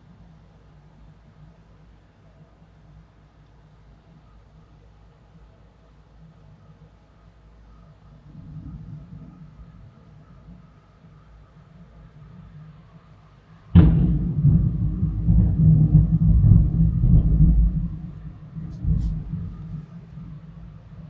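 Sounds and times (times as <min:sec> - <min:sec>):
thunder crack and rumble: 0:08.2 - 0:10.8, 0:13.7 - 0:21.0.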